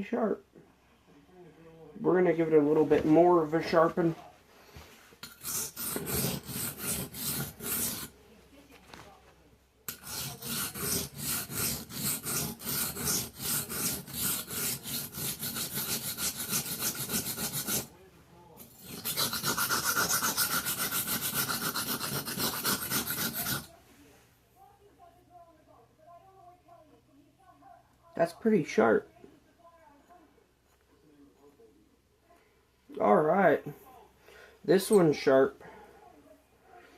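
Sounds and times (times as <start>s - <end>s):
knife scraping on whetstone: 5.2s - 8.1s, 9.9s - 17.9s, 18.6s - 23.7s.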